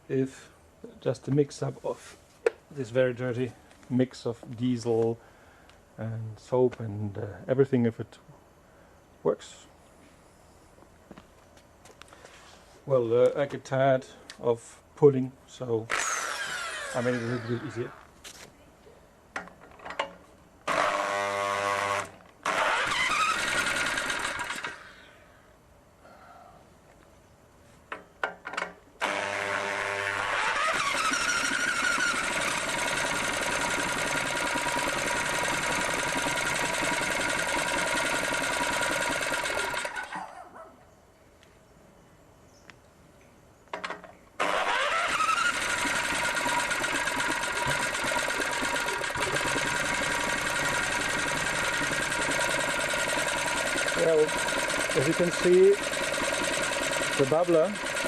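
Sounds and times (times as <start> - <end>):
small engine running: 15.9 - 18.0, 20.7 - 24.9, 29.0 - 40.2, 44.4 - 58.0.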